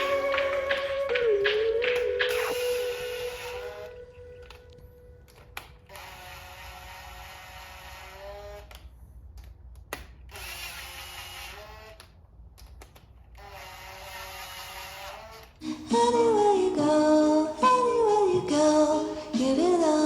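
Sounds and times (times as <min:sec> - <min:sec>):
power tool whine: 0:00.0 - 0:08.7
small clicks of tool parts: 0:08.6 - 0:10.5, 0:12.0 - 0:13.4.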